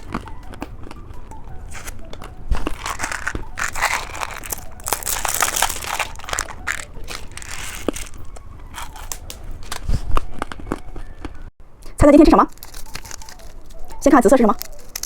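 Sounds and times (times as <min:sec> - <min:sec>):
plastic packaging crinkling: 0:02.6 - 0:09.9, 0:12.5 - 0:15.0.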